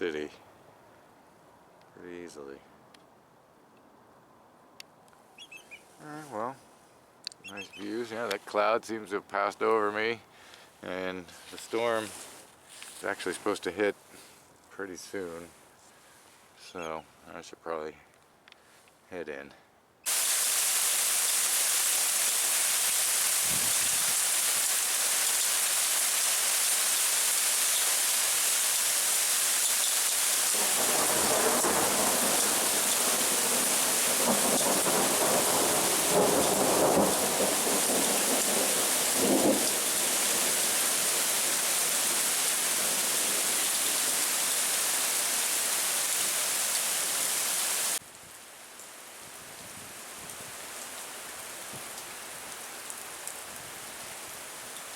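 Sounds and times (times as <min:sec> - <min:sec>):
heavy rain hissing: 0:20.1 - 0:48.0
rolling thunder: 0:30.6 - 0:40.6.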